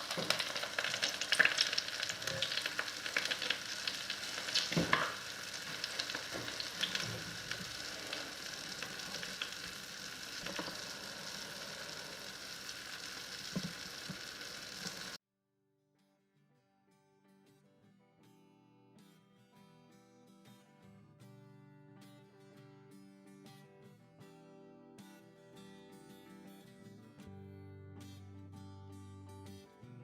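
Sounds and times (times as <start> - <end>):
food sizzling in hot oil: 0.0 - 15.2.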